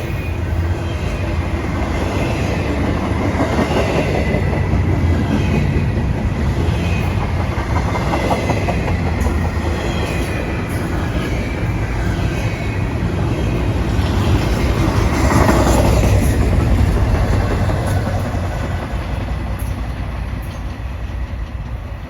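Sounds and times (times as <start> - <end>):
freight train wheels rattling on rails: 0.0 - 22.0.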